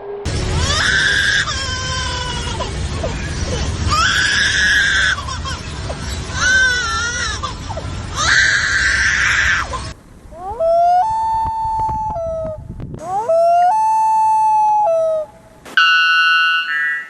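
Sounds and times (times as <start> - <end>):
loon wailing: 6.3 - 15.4.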